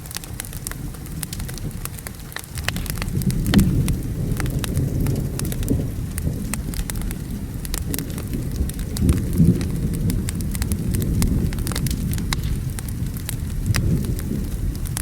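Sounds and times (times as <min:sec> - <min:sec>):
rolling thunder: 0:00.0 - 0:15.0
steady rain: 0:00.0 - 0:15.0
wood fire crackling: 0:00.0 - 0:15.0.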